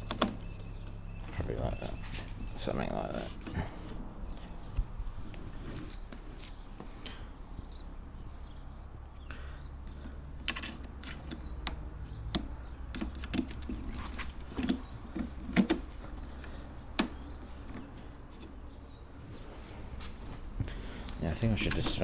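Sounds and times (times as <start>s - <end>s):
plastic and metal parts clicking: 0.0s - 1.2s, 9.8s - 18.5s.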